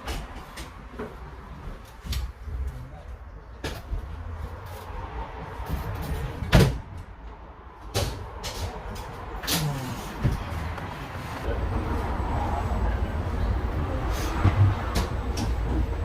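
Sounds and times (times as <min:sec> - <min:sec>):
bus engine idling: 0:08.2 - 0:16.0.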